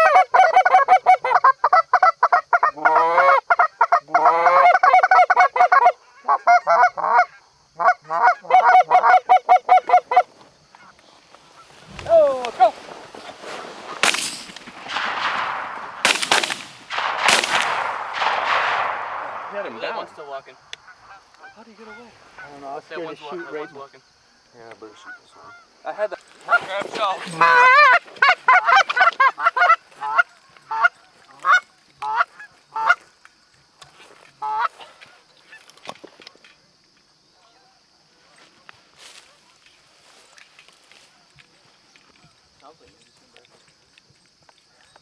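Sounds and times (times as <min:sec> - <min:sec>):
geese honking: 0:02.7 - 0:23.9
shotgun shots with echo: 0:13.9 - 0:20.8.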